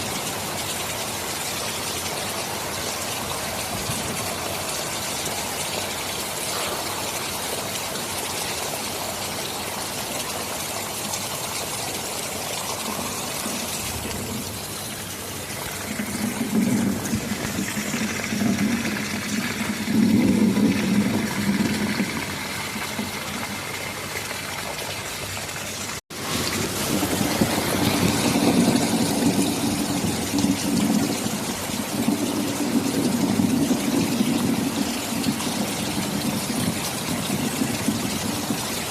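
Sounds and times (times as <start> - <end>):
heavy rain: 0.0 - 38.9
low rolling thunder: 12.7 - 23.9, 26.1 - 38.9.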